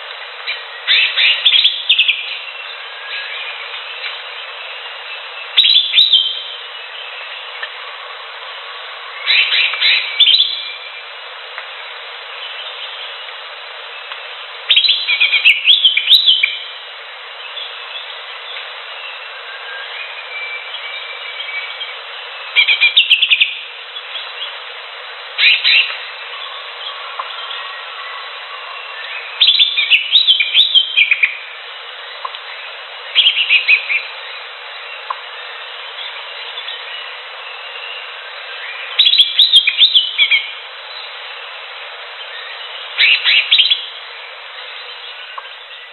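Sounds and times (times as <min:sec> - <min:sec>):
steady background hiss: 0:00.0 - 0:45.9
bird whistled song: 0:00.5 - 0:07.4, 0:09.2 - 0:11.0, 0:14.7 - 0:16.7, 0:17.5 - 0:24.5, 0:25.4 - 0:31.4, 0:33.1 - 0:41.1, 0:42.3 - 0:44.0.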